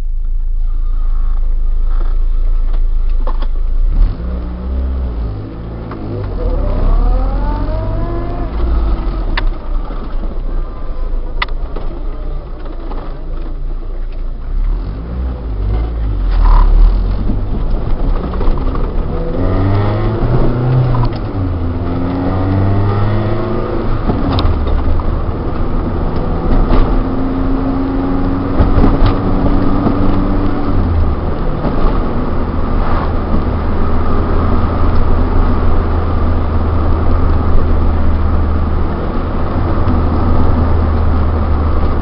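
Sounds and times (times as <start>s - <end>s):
car engine accelerating: 0.0s - 42.0s.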